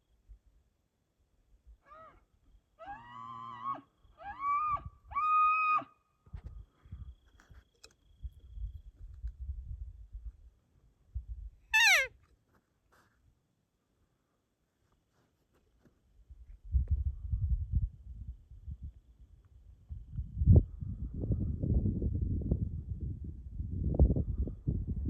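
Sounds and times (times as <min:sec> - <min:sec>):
elk bugling: 0:11.8 - 0:12.1.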